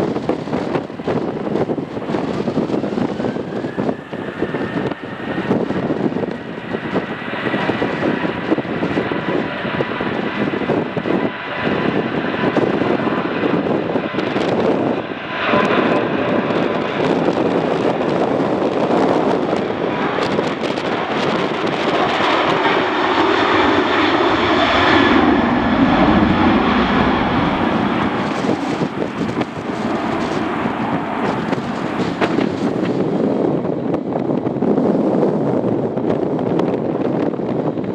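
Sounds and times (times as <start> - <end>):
jet engine whine: 0.0 - 37.9
loud rushing noise: 20.2 - 33.8.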